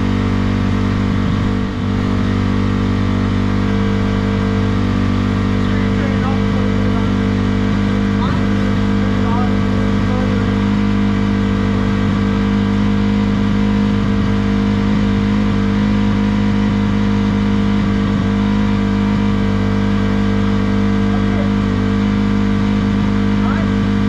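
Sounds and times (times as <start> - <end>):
vehicle engine running steadily: 0.0 - 24.0.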